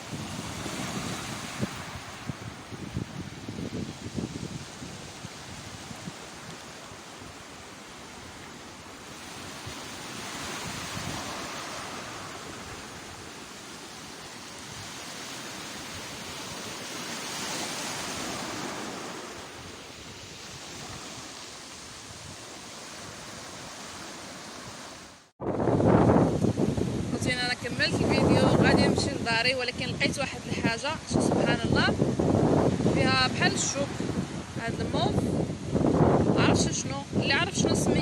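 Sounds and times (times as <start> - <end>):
sea surf washing in: 0.0 - 38.0.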